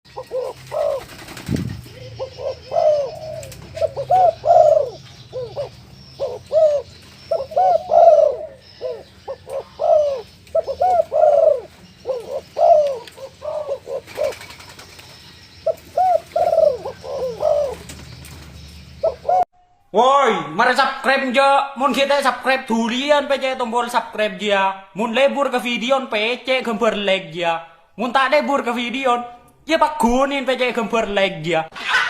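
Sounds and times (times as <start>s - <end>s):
dove cooing: 0.1s - 19.5s.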